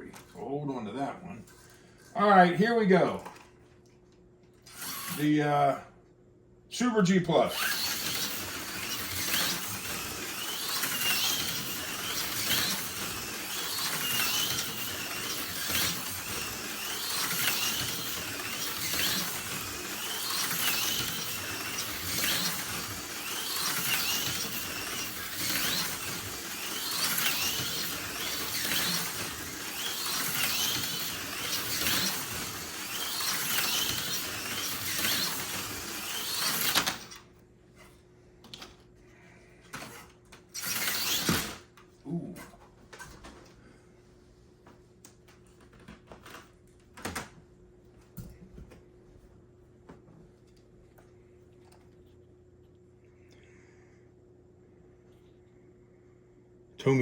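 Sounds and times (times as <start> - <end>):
slot car motor whine: 4.6 - 5.8, 6.8 - 37.4, 39.7 - 41.7.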